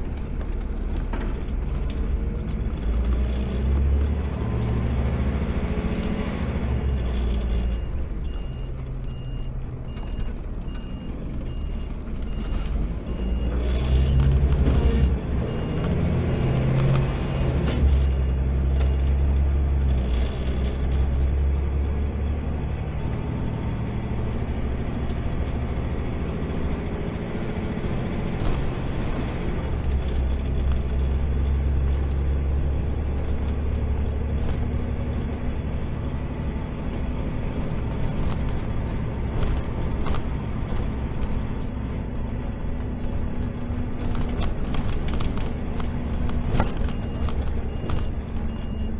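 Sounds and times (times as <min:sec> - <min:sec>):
garbage truck engine running: 0:00.0 - 0:48.9
clicks and rattles: 0:33.0 - 0:48.9.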